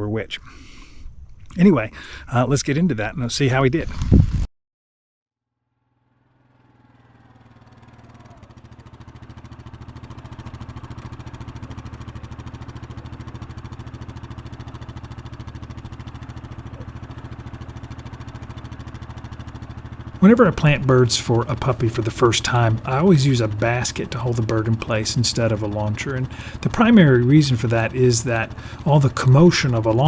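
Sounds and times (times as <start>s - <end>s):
engine idling: 6.2s - 30.0s.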